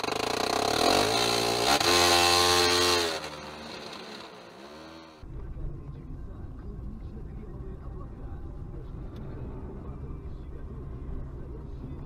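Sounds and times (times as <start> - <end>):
car engine revving: 0.0 - 5.3
low road rumble: 0.0 - 12.0.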